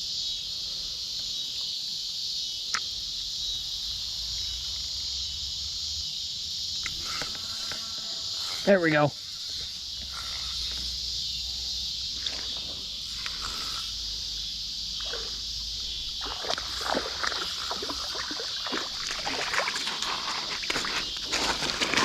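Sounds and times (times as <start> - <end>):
insects buzzing: 0.0 - 22.0
creek water splashing: 12.1 - 22.0.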